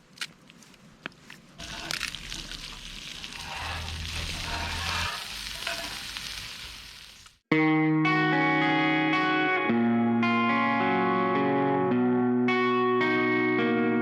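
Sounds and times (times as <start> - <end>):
food sizzling on a griddle: 1.6 - 7.4.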